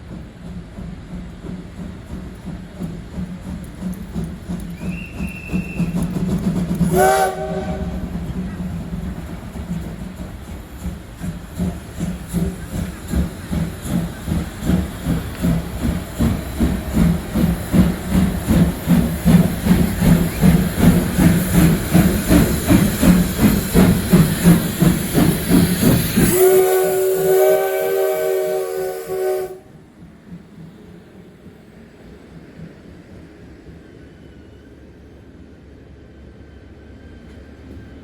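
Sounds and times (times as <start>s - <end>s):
steam locomotive chuffing: 0.0s - 35.2s
steam whistle chord: 6.9s - 8.0s, 26.2s - 29.7s.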